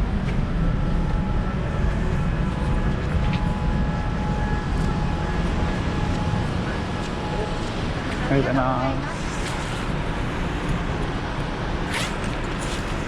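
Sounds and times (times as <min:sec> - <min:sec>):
faint whining tones: 0:00.0 - 0:13.0
low machinery rumble: 0:00.0 - 0:13.0.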